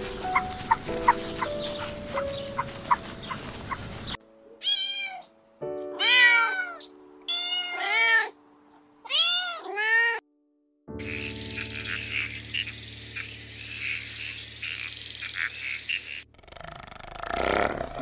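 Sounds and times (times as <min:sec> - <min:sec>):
cat meowing: 0:04.6 - 0:05.4, 0:06.0 - 0:08.4, 0:09.0 - 0:10.2.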